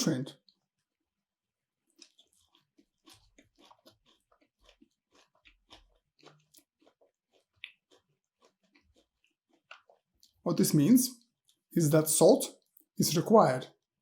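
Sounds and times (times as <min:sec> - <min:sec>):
close-up chewing: 0:01.7 - 0:10.4, 0:11.2 - 0:11.8.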